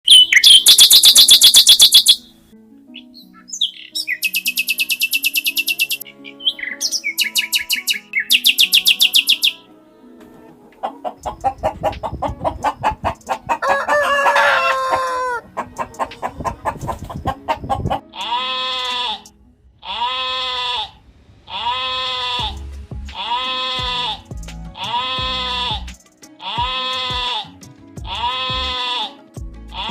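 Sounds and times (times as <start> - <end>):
small bird chirping: 0.0 - 2.3, 3.0 - 9.6, 11.2 - 13.6
chickens clucking: 3.5 - 20.6
rooster crowing: 10.2 - 15.7
animal bleating: 18.0 - 22.6, 23.2 - 29.9.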